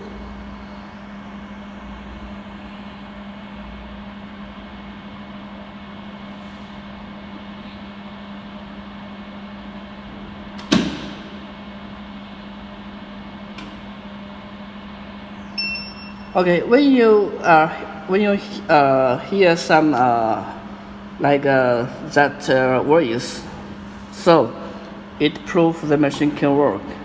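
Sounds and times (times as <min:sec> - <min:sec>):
welding machine humming: 0:08.6 - 0:27.0
sharp snap: 0:10.6 - 0:11.3.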